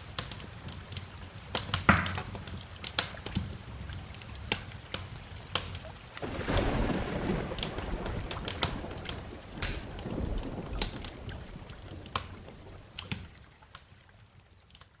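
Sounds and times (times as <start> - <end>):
rain: 0.0 - 15.0
wood fire crackling: 0.0 - 15.0
rumble of thunder: 6.2 - 13.5.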